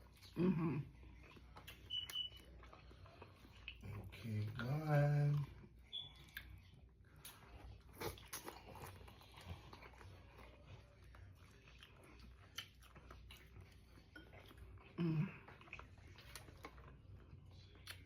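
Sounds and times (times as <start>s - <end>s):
chewing and biting food: 0.0s - 18.0s.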